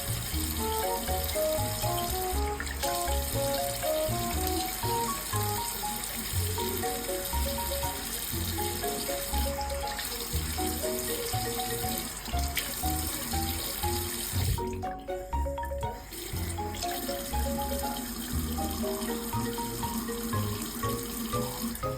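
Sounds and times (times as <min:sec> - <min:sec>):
bouncy background music: 0:00.0 - 0:21.9
tap water running into sink: 0:00.0 - 0:21.9.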